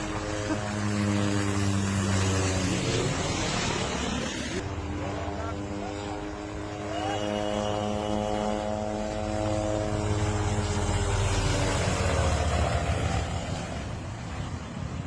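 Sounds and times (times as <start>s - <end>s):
helicopter engine: 0.0s - 15.0s.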